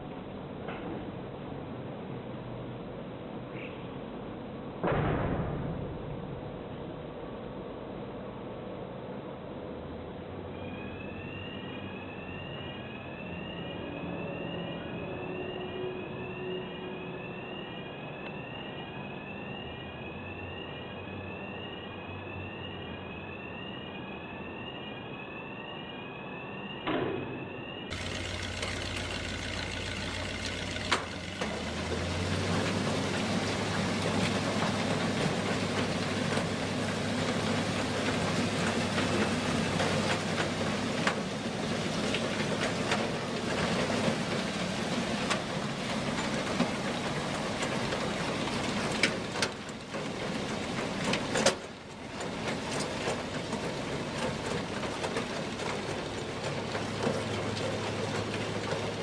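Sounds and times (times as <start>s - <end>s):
vehicle engine running: 27.9s - 59.0s.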